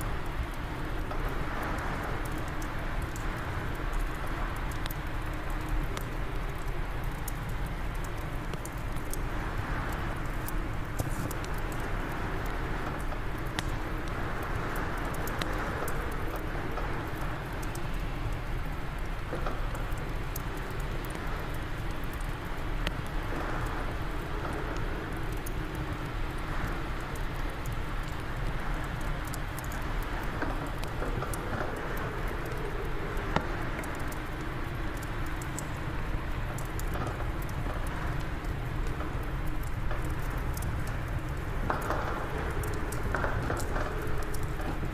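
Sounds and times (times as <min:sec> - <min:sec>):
fire crackling and popping: 0:00.0 - 0:44.9.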